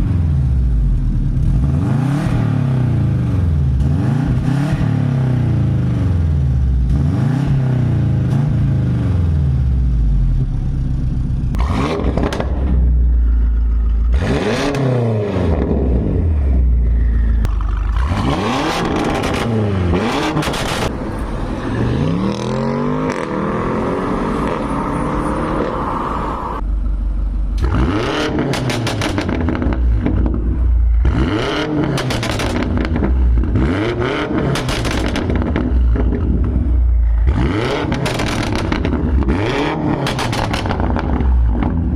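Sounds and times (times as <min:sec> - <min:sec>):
car engine revving: 0:00.0 - 0:10.6, 0:11.5 - 0:26.9, 0:27.5 - 0:41.9
exhaust crackles and pops: 0:11.5 - 0:14.2, 0:16.8 - 0:21.0, 0:27.6 - 0:31.2, 0:31.8 - 0:33.6, 0:34.3 - 0:41.9.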